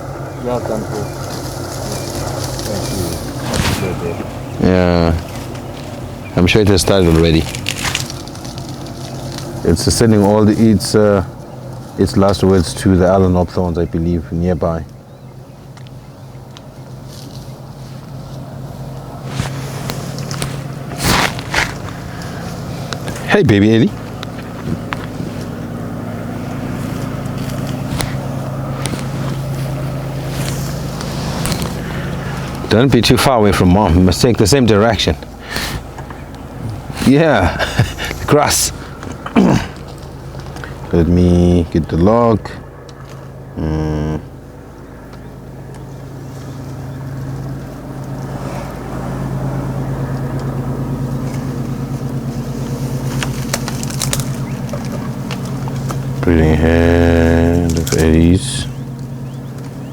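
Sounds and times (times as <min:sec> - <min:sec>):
vehicle engine idling: 0:00.0 - 0:59.9.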